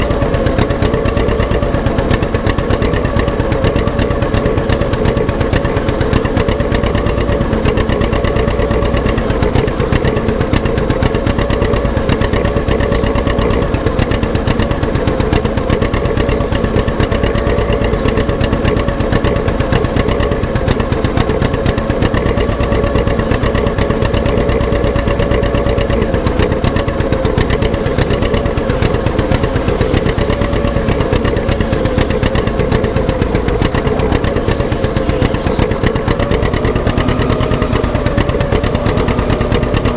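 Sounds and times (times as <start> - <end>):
tractor engine running under load: 0.0 - 39.9.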